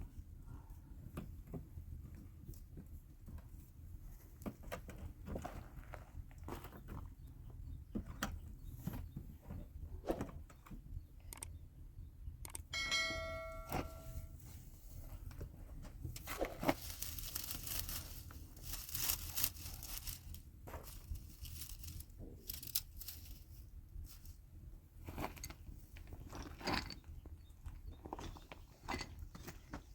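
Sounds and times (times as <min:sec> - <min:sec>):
sharp clicks: 0:11.2 - 0:11.6, 0:12.4 - 0:12.7
crunching and rustling: 0:15.8 - 0:24.4.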